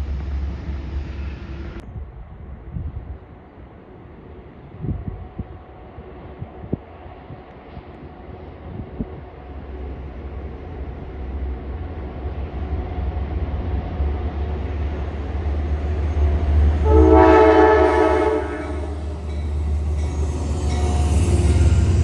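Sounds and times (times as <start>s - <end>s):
train engine rumble: 0.0s - 22.0s
train horn blast: 16.8s - 22.0s.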